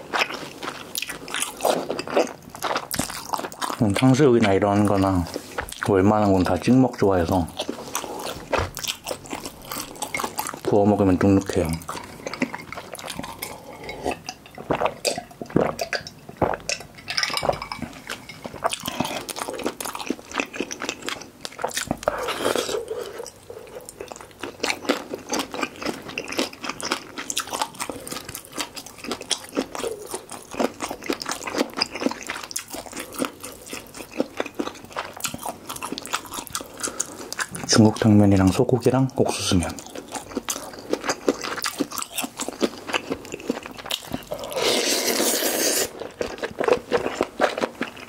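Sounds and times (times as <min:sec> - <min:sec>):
crunchy chewing: 0:00.0 - 0:05.9, 0:07.3 - 0:38.1, 0:39.6 - 0:48.0
spoon and chopsticks clinking bowl: 0:16.9 - 0:18.5.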